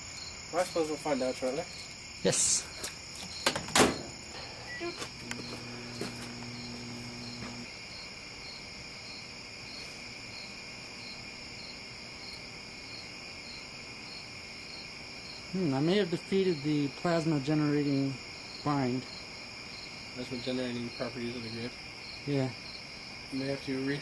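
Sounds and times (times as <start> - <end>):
crickets chirring: 0.0 - 24.0
low electrical hum: 4.0 - 15.3.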